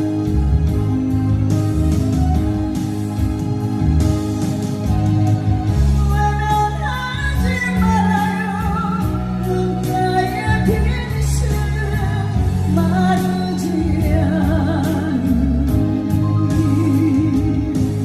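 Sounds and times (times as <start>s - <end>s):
band accompaniment: 0.0s - 18.0s
woman singing a slow ballad: 5.8s - 18.0s.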